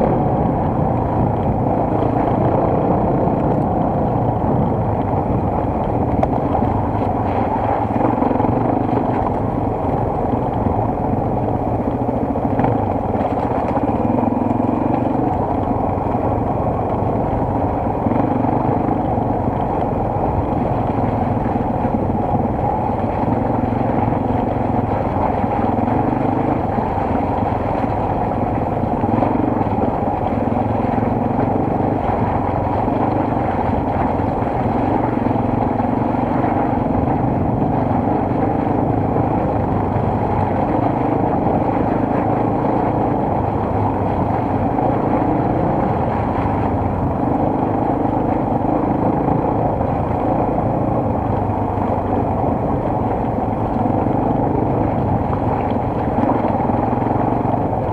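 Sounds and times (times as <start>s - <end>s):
steady rushing noise: 0.0s - 57.9s
motorcycle engine revving: 5.2s - 19.2s.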